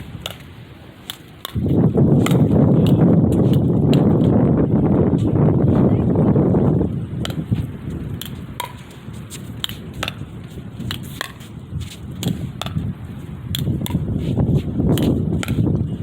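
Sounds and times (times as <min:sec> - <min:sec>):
wind rumble on microphone: 0:00.0 - 0:16.0
paddles hitting plastic ball: 0:00.2 - 0:04.3, 0:07.2 - 0:11.5, 0:12.2 - 0:12.9.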